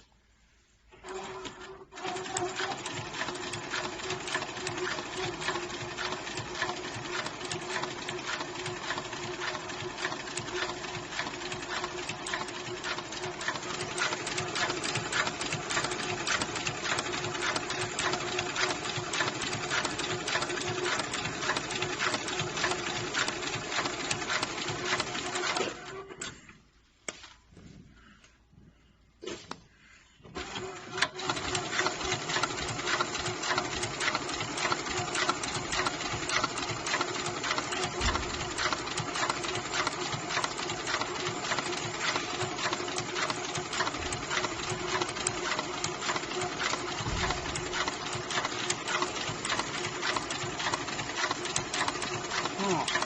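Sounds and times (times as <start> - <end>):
sewing machine motor hum: 0.9 - 26.4, 30.3 - 53.0
sewing machine needle strokes: 1.0 - 26.0, 30.4 - 53.0.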